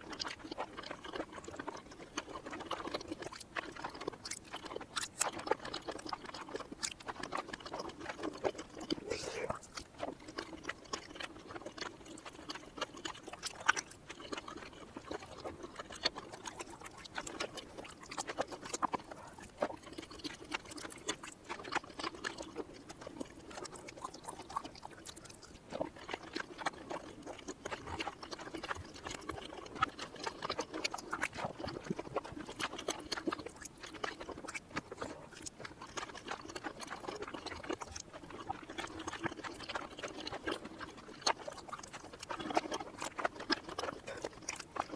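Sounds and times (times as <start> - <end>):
mouth clicks and smacks: 0.0 - 44.9.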